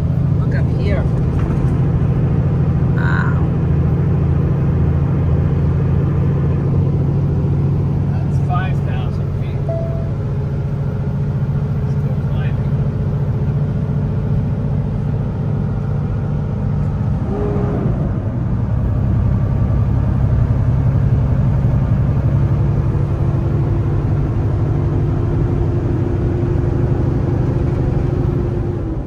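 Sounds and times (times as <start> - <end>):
truck engine droning: 0.0 - 29.0.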